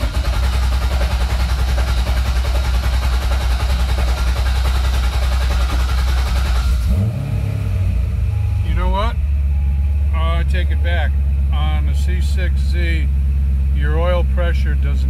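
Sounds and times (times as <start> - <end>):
starter cranking engine: 0.0 - 7.1
car engine idling: 0.0 - 15.0.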